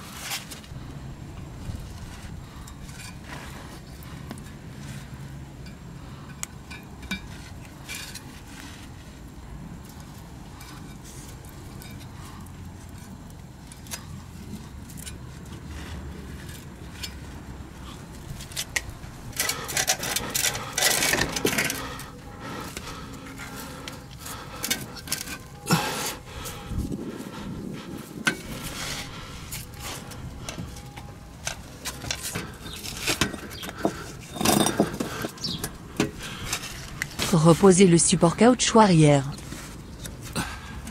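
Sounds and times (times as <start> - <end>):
low hum: 0.0 - 40.9
metal clatter: 18.3 - 26.0, 29.5 - 37.2
metal exhaust pipe clinks: 29.6 - 36.6.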